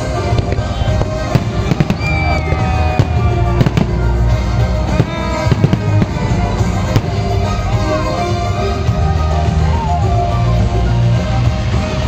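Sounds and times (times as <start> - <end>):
fireworks bursting with sharp bangs: 0.0 - 9.9
loud music playing: 0.0 - 12.0.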